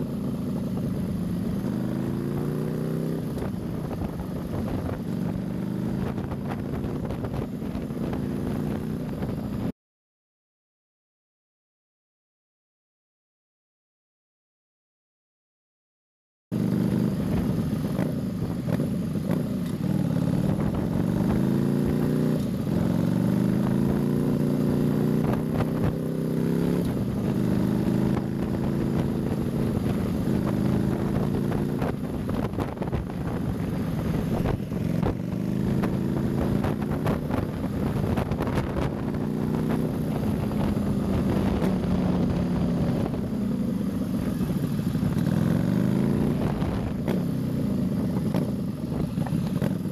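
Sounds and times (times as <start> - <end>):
motorcycle engine shifting gears: 16.6 - 49.9.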